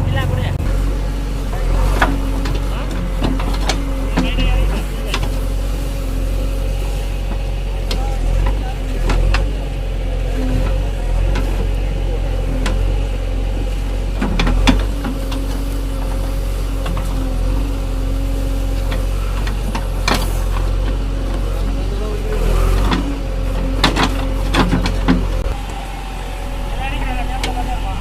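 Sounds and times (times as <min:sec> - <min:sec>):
engine running: 0:00.0 - 0:28.0.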